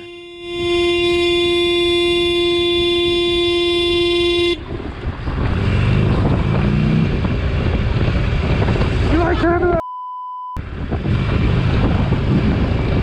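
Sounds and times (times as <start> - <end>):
vehicle horn blast: 0.0 - 4.7
wind rush: 4.6 - 9.8, 10.6 - 13.0.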